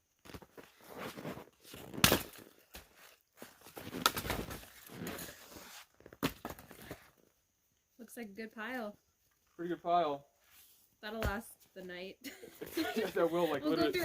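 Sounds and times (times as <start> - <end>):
firewood rustling and scraping: 0.1 - 7.4.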